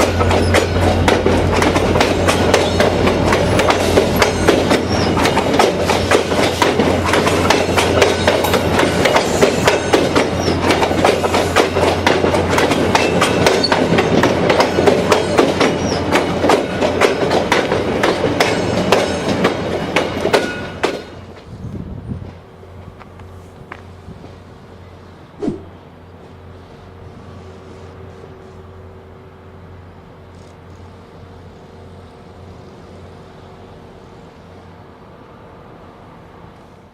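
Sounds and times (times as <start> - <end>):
train wheels clickety-clack: 0.0 - 21.6
train rumble: 0.0 - 36.9.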